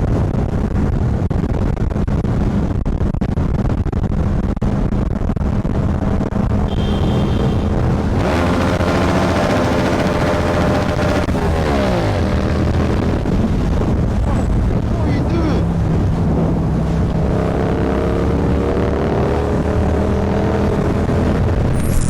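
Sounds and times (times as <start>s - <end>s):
motorcycle engine revving: 5.9s - 22.0s.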